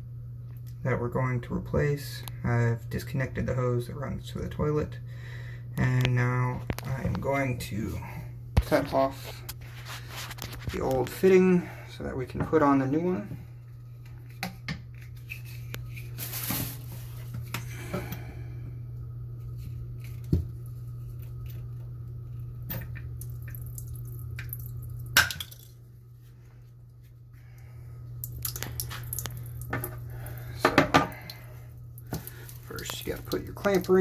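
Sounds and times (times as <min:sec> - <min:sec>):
steady low hum: 0:00.0 - 0:34.0
water dripping and splashing: 0:22.9 - 0:25.8, 0:28.2 - 0:34.0.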